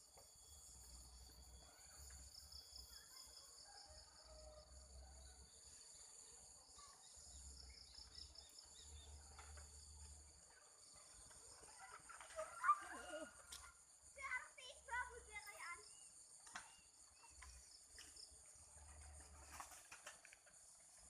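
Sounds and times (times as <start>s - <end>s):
insects chirring: 5.5s - 21.0s.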